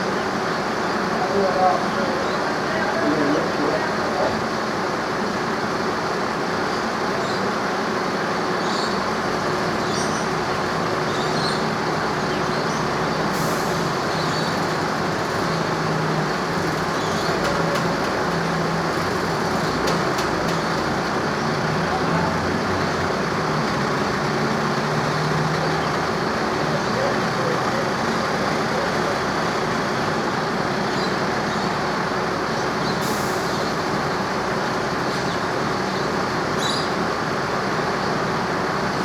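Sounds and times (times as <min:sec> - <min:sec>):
vehicle engine running: 0:09.1 - 0:34.9.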